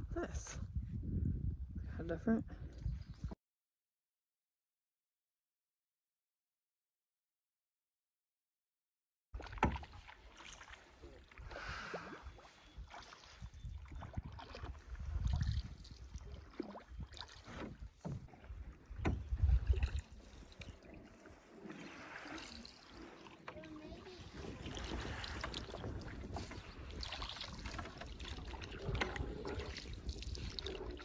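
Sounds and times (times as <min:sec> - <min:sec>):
wind rumbling on microphone: 0:00.0 - 0:03.4, 0:11.4 - 0:21.3, 0:23.6 - 0:31.0
paddle strokes in water: 0:09.4 - 0:31.0.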